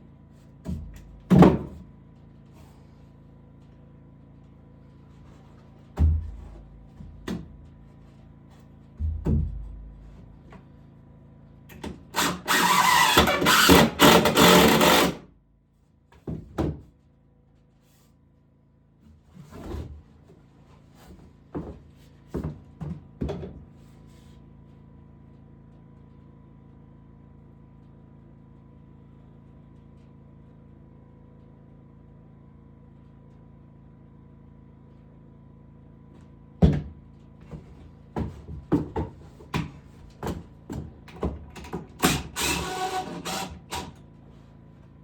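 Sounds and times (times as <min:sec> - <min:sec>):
knocks on wood: 0:06.0 - 0:07.6, 0:09.0 - 0:10.0, 0:36.6 - 0:41.8
low thumps on wood: 0:06.0 - 0:07.6, 0:09.0 - 0:10.2
harsh rasping sawing: 0:12.2 - 0:15.2, 0:42.0 - 0:44.0.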